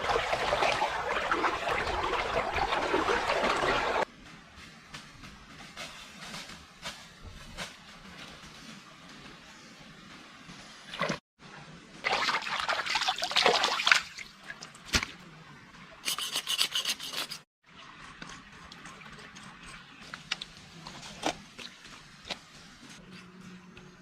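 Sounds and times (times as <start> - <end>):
rubbing and scraping: 16.0 - 23.4.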